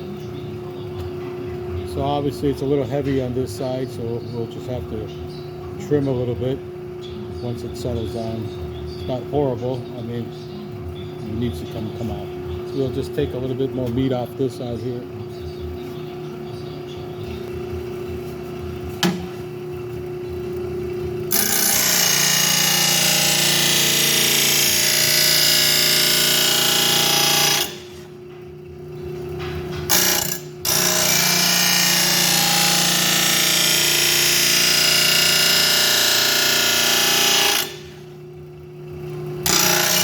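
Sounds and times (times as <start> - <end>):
grinding wheel grinding steel: 16.6 - 40.0
sharpener motor running: 20.9 - 28.2, 29.9 - 38.3, 39.4 - 40.0.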